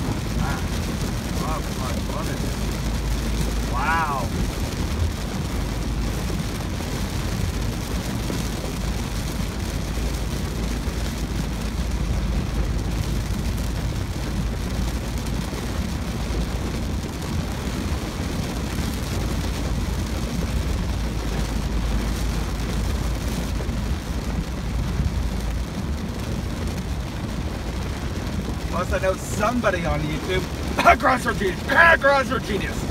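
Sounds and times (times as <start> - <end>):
rain on car roof: 0.0 - 32.9
road and tyre noise: 0.0 - 32.9.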